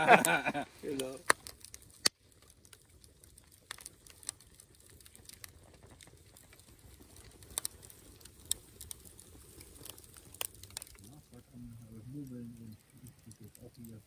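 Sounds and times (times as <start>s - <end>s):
campfire crackling and popping: 0.0s - 14.0s
faint low hiss: 0.0s - 14.0s.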